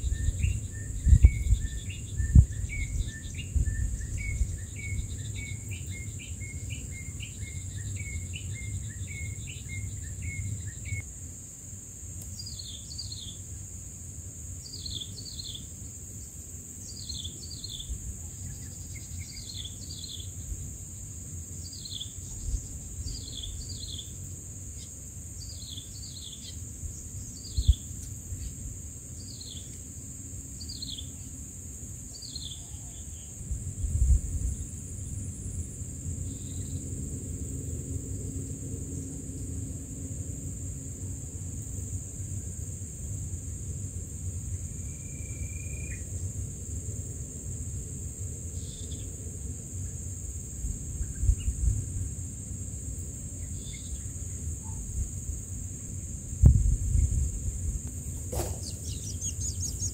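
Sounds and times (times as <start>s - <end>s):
low wind rumble: 0.0s - 11.0s, 33.1s - 44.8s, 46.3s - 59.9s
insect drone: 0.0s - 59.9s
nestlings begging chirps: 58.1s - 59.9s
high falling bird notes: 58.2s - 59.9s.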